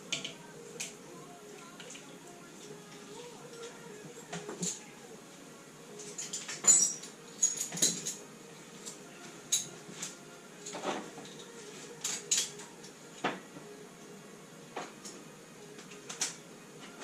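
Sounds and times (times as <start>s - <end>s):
spanners clinking on metal: 6.0s - 8.3s.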